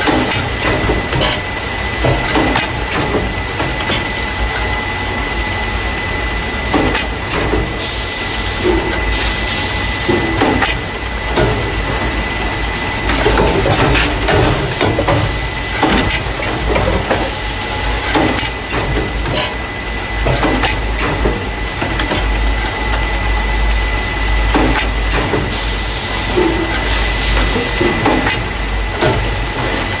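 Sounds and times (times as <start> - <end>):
clacks and knocks of cartons: 0.0 - 4.1
machine humming: 0.0 - 30.0.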